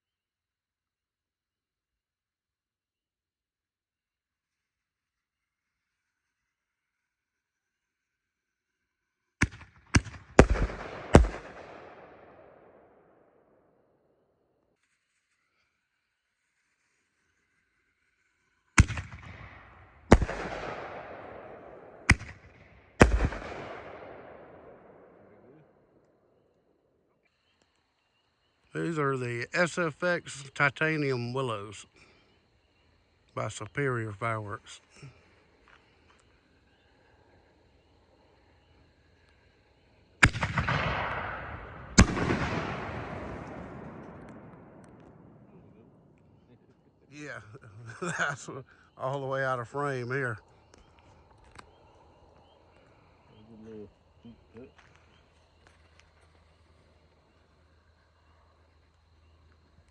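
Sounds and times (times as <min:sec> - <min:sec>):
firework bangs: 0:09.4 - 0:12.5, 0:18.8 - 0:25.4, 0:40.2 - 0:45.8.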